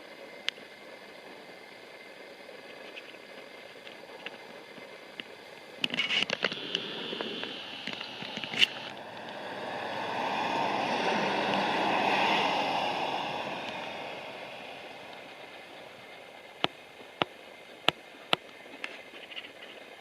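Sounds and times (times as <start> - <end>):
rushing noise passing by: 6.5 - 17.1.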